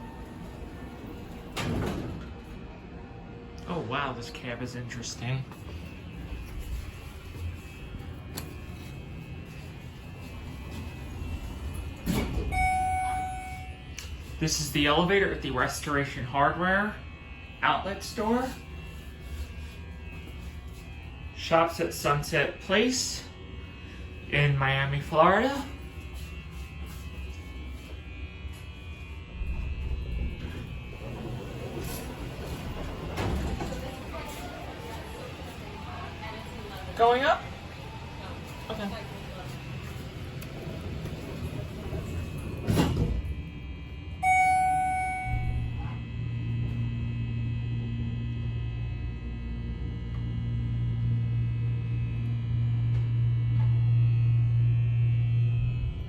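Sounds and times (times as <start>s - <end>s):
low electrical hum: 0.0s - 56.0s
elevator door thud: 0.3s - 2.5s, 44.2s - 45.8s
elevator chime: 12.0s - 14.0s, 44.2s - 45.8s.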